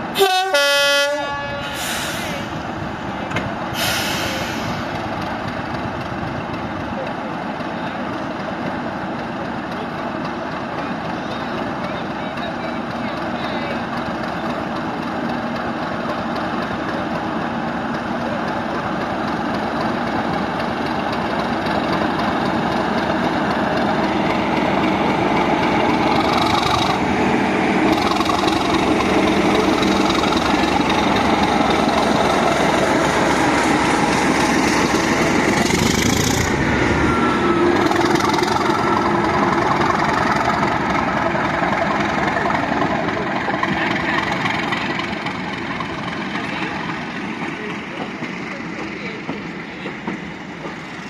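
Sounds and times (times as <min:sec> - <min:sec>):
diesel locomotive engine running: 0:00.0 - 0:51.0
short high hisses: 0:01.6 - 0:02.6, 0:03.8 - 0:04.9.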